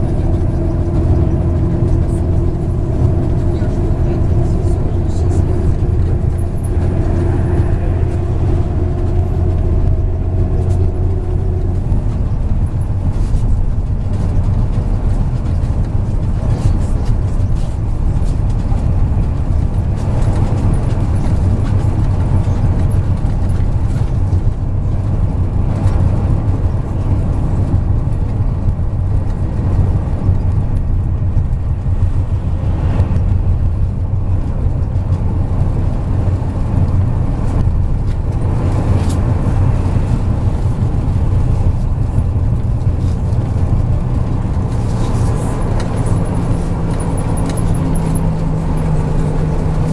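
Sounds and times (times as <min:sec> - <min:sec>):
bus engine and road rumble: 0:00.0 - 0:49.9.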